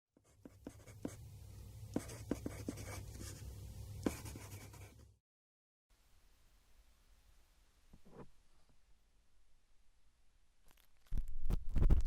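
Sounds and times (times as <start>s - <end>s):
low steady hum: 0.2s - 5.2s.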